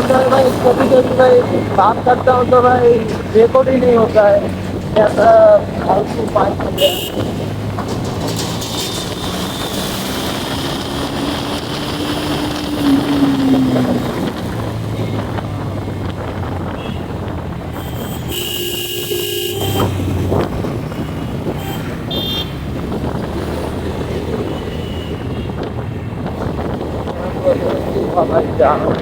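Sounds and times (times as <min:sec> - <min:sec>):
motorcycle engine running: 0:00.0 - 0:29.0
traffic: 0:00.0 - 0:29.0
wind noise on microphone: 0:00.0 - 0:29.0
vehicle horn: 0:06.6 - 0:07.6, 0:16.7 - 0:20.2, 0:21.1 - 0:22.7, 0:24.4 - 0:25.7.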